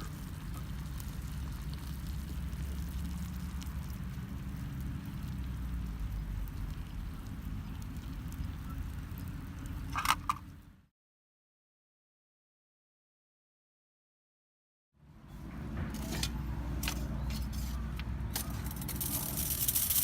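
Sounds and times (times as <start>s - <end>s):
campfire crackling: 0.0s - 10.7s, 17.6s - 20.0s.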